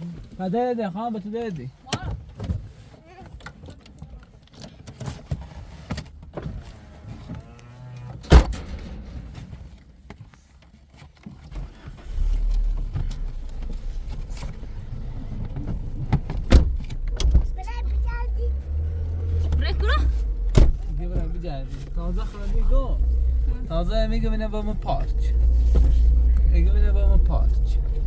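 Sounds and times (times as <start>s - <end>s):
car engine rumble: 4.8s - 28.0s
car door slamming: 8.2s - 9.8s, 11.9s - 18.0s, 18.6s - 23.6s.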